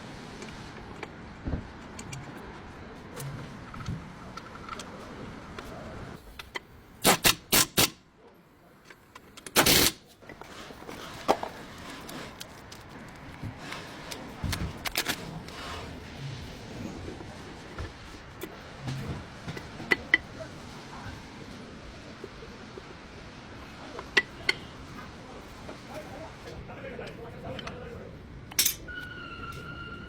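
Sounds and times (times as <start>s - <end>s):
tools and metal parts clanking: 28.5s - 29.0s.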